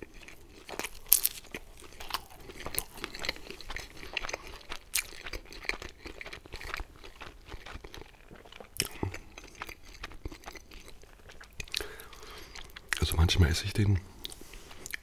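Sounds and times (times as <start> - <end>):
chewing pizza crunches: 0.0 - 15.0
wet mouth clicks: 8.8 - 13.0, 14.2 - 15.0.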